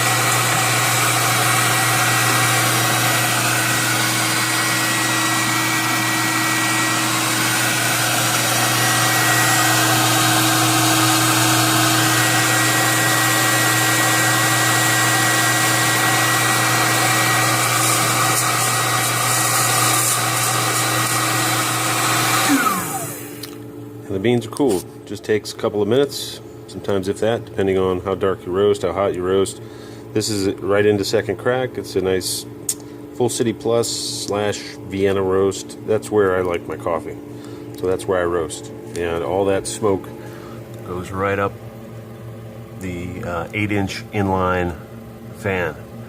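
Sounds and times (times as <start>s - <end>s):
electric blower humming and whining: 0.0s - 25.0s.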